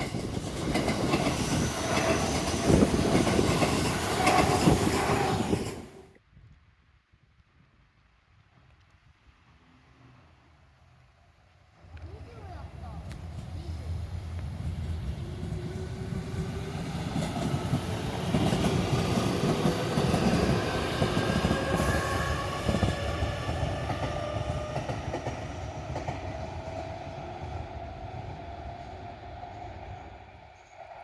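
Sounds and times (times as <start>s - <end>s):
train wheels rumbling on rails: 0.0s - 6.2s, 11.8s - 31.0s.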